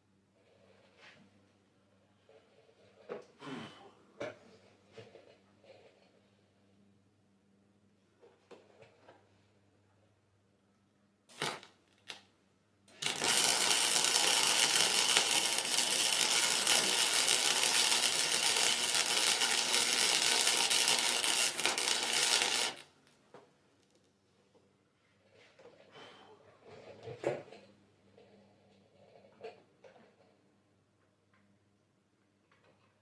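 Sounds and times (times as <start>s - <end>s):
welder arc crackling: 11.3s - 11.7s, 13.0s - 22.9s.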